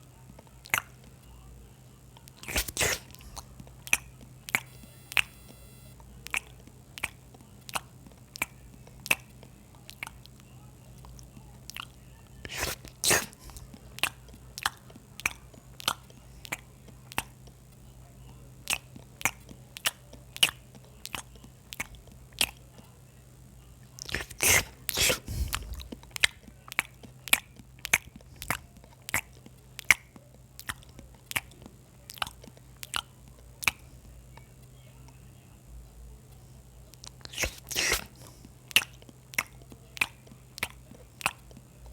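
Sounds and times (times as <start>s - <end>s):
person chewing: 2.2s - 10.4s, 11.1s - 17.6s, 18.6s - 22.6s, 24.0s - 34.1s, 36.9s - 41.9s
crunchy bites: 2.3s - 6.0s, 12.5s - 17.3s, 24.0s - 31.5s, 37.0s - 41.9s.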